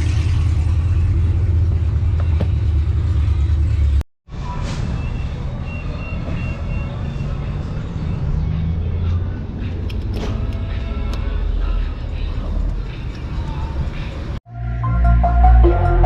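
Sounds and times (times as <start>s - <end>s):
car exhaust deep rumble: 0.0s - 4.0s.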